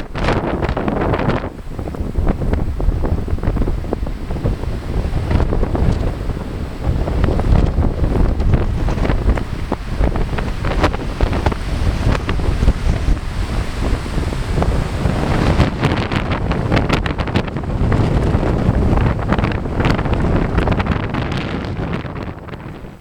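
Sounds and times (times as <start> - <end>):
gusty wind on microphone: 0.0 - 23.0.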